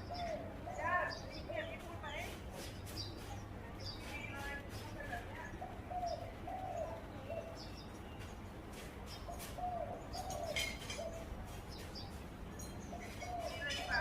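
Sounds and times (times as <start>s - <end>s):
dove cooing: 0.0s - 1.2s, 5.2s - 7.7s, 9.3s - 11.5s, 12.9s - 14.0s
small birds chirping: 0.0s - 14.0s.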